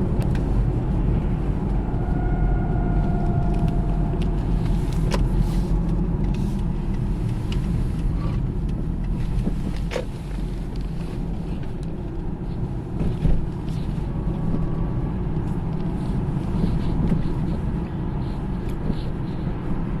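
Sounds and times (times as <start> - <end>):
road and drivetrain rumble: 0.0 - 20.0
faint bearing whistle: 1.8 - 4.2.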